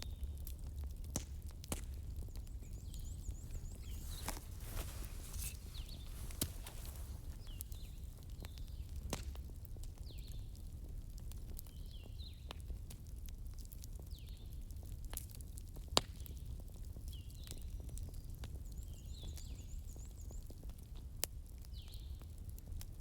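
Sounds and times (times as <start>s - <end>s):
wood fire crackling: 0.3s - 14.2s.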